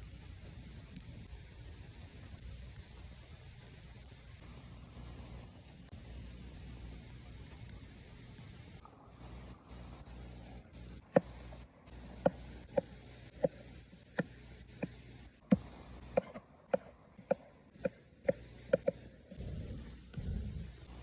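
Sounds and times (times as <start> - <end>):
knife chopping on cutting board: 12.1 - 19.1.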